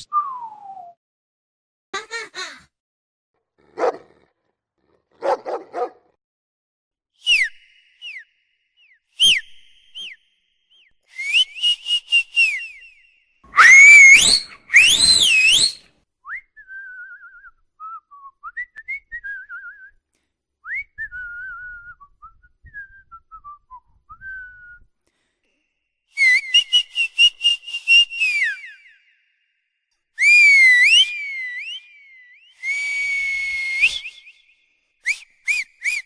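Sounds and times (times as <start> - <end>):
person whistling: 0.0 - 1.0, 7.2 - 20.0, 20.6 - 24.9, 26.2 - 29.3, 30.2 - 36.0
loud swooping whistles: 7.2 - 15.9.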